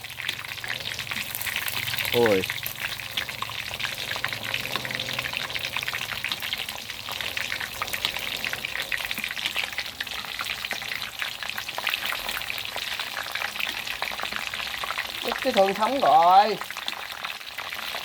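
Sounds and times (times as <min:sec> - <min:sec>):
fish deep-frying in hot oil: 0:00.0 - 0:18.0.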